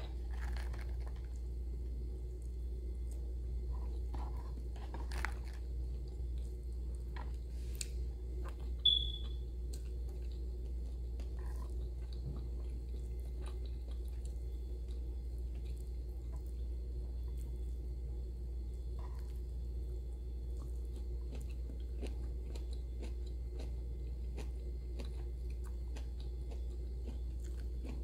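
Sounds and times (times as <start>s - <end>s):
steady low hum: 0.0s - 28.0s
person chewing: 0.2s - 1.4s, 9.7s - 16.6s, 20.5s - 28.0s.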